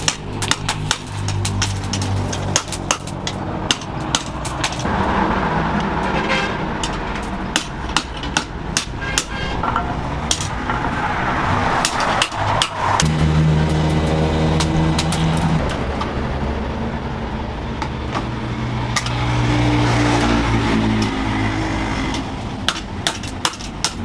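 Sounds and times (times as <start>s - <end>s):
hammer striking metal: 0.0s - 4.9s, 6.8s - 10.9s, 11.8s - 15.8s, 20.8s - 24.0s
steady rushing noise: 0.0s - 24.0s.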